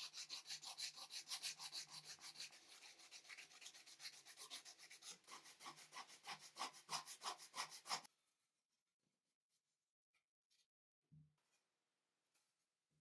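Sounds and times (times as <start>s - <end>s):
hand sanding strokes: 0.0s - 8.1s.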